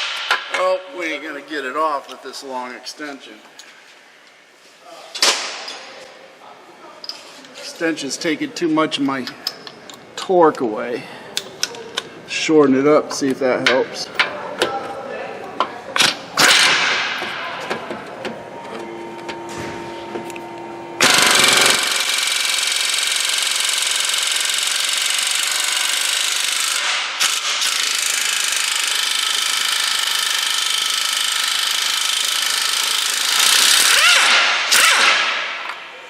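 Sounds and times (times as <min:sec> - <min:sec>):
impact wrench hammering: 0:00.0 - 0:00.6, 0:16.0 - 0:20.4, 0:21.0 - 0:35.8.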